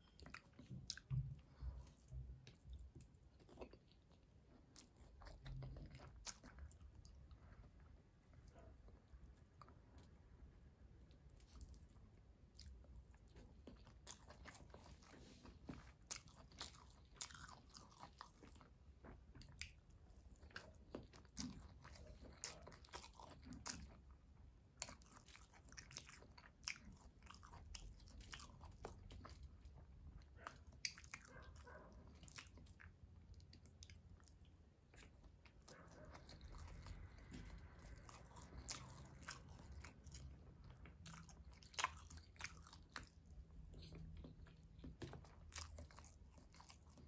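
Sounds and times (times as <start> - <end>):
wet chewing smacks: 24.8 - 47.0.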